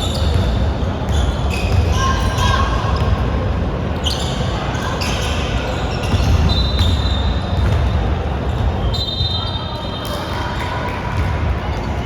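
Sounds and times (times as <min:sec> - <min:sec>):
basketball bouncing on court: 0:00.1 - 0:02.3, 0:06.0 - 0:08.8.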